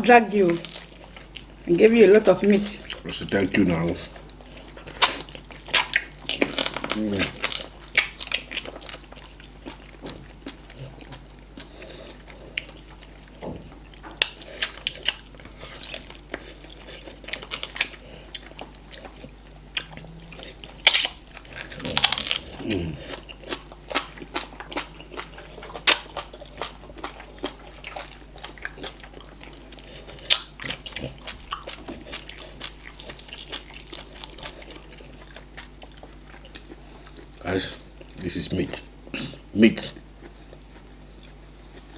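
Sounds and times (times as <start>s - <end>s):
close-miked chewing: 0.0s - 41.9s.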